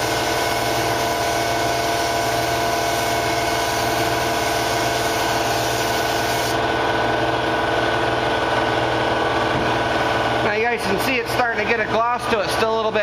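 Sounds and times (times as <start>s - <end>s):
spray gun hissing: 0.0s - 6.6s
steady motor hum: 0.0s - 13.0s.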